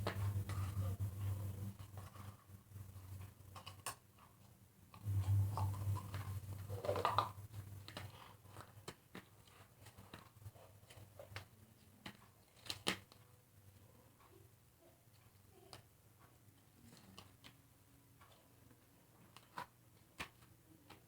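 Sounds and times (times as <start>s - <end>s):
low hum: 5.0s - 7.6s.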